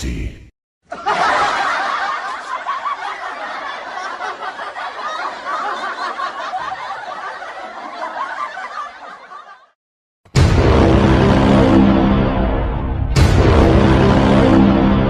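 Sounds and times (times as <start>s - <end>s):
group of people laughing: 0.8s - 9.8s
loud music: 10.3s - 15.0s.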